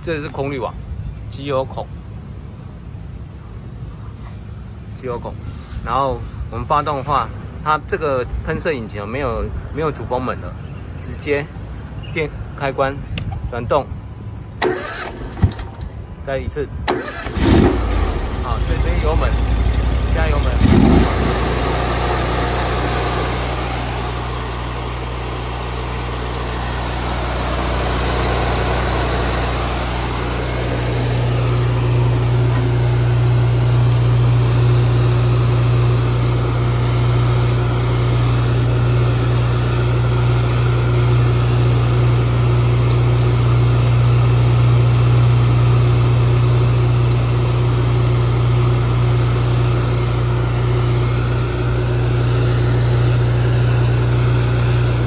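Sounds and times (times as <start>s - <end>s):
engine running: 14.2s - 55.0s.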